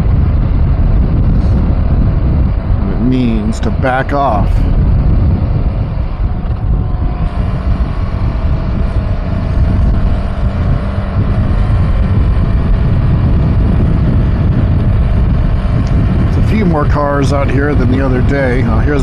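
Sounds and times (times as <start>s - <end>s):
motorcycle engine running: 0.0s - 19.0s
wind rushing over microphone: 0.0s - 19.0s.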